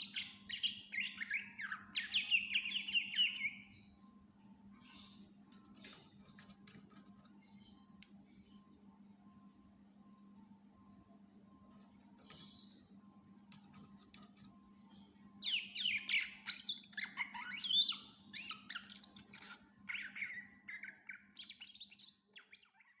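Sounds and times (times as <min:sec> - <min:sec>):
bird singing whistled notes: 0:00.0 - 0:04.0, 0:15.0 - 0:23.0.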